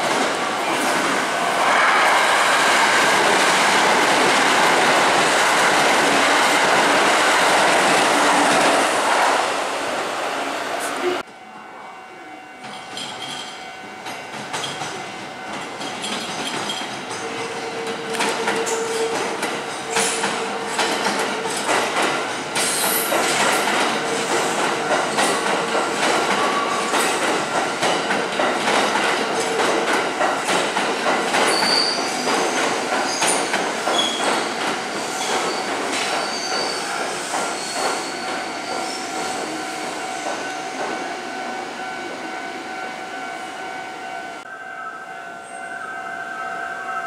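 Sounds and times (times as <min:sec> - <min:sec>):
train wheels clattering: 0:12.6 - 0:41.1
wheel squeals: 0:31.5 - 0:32.2, 0:33.1 - 0:34.4, 0:35.0 - 0:39.1.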